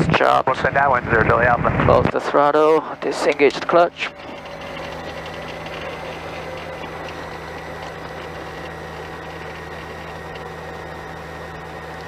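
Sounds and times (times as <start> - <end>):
helicopter piston engine idling: 2.3 - 12.0.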